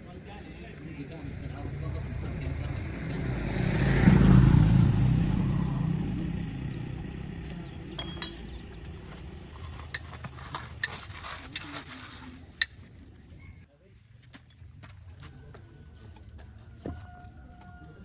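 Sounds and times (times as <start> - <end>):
vehicle engine rumbling: 0.0 - 13.7
sharp metallic clinks: 7.8 - 9.0.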